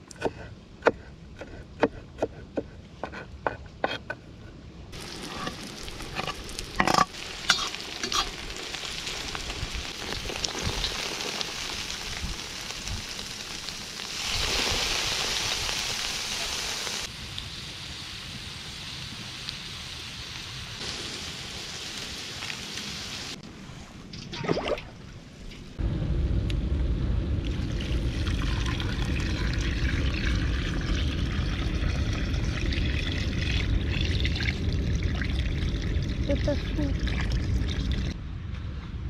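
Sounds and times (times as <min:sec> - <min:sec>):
food sizzling while stirred: 0:05.0 - 0:17.1.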